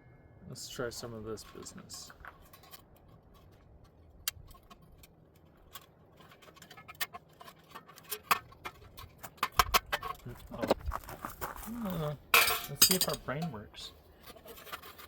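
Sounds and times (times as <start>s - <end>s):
metal wire and tool clinking: 0.6s - 10.5s, 12.3s - 13.6s.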